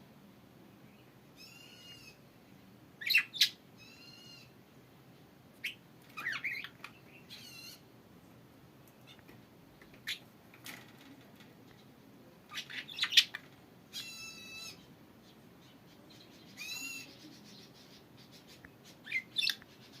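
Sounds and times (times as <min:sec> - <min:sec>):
budgies chirping: 0:01.4 - 0:02.2, 0:03.0 - 0:04.5, 0:05.6 - 0:07.9, 0:10.0 - 0:10.3, 0:12.5 - 0:20.0.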